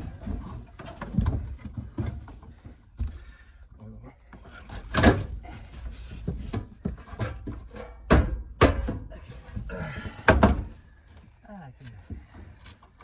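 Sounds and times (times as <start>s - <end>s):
wooden knocks and thuds: 0.0s - 3.4s, 4.3s - 11.0s.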